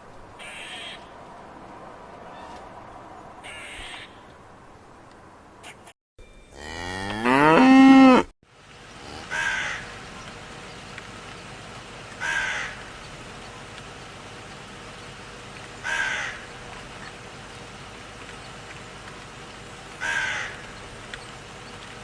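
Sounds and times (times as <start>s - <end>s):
long rising animal call: 6.6s - 8.3s.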